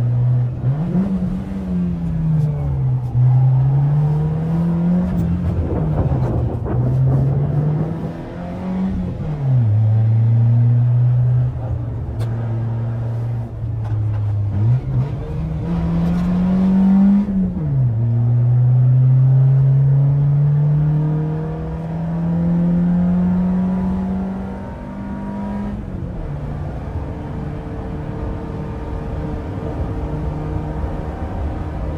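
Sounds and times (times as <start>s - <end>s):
car engine revving hard: 0.1s - 11.4s, 14.5s - 25.9s.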